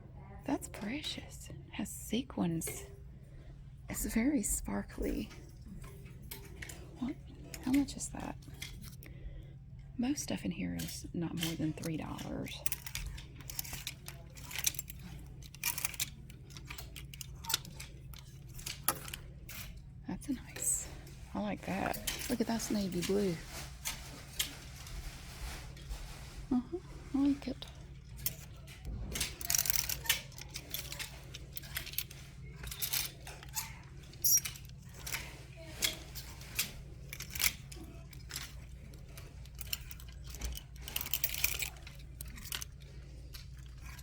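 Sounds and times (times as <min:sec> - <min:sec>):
steady low hum: 0:00.0 - 0:44.0
hangers scraping on metal rack: 0:10.7 - 0:19.8, 0:20.5 - 0:25.9, 0:27.2 - 0:44.0
fabric rustling: 0:21.1 - 0:27.6.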